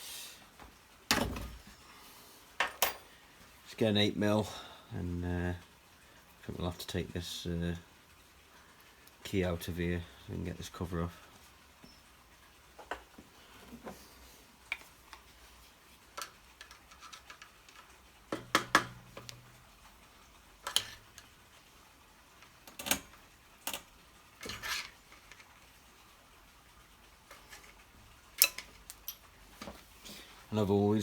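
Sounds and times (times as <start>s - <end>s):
metal tool clicks and clinks: 2.6s - 3.1s, 28.4s - 29.2s.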